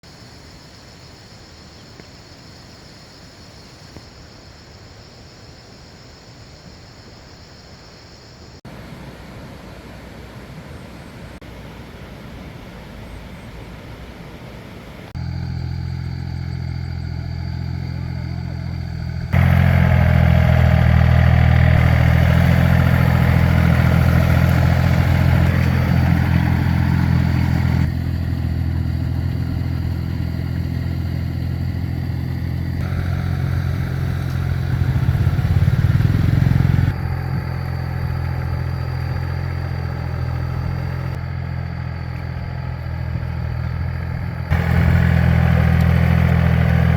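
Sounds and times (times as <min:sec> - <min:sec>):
tractor engine running: 0:15.2 - 0:46.9.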